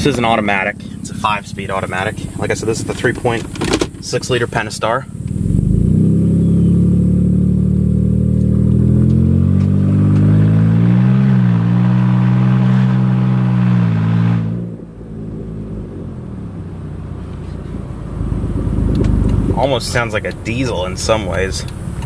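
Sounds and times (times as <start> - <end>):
loud car engine accelerating: 0.0 - 22.0.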